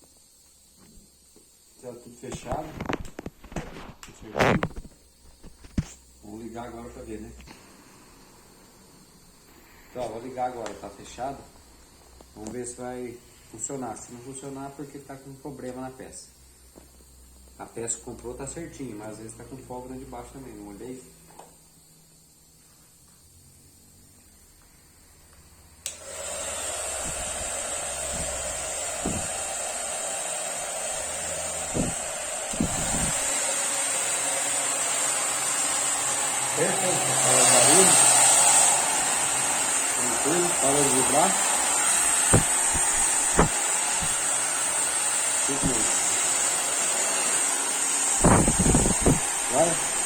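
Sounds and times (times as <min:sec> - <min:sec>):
hair dryer running with whine: 0:25.7 - 0:50.0
hair dryer switch click: 0:25.8 - 0:29.8, 0:42.1 - 0:44.2
soft knocks: 0:29.0 - 0:29.4.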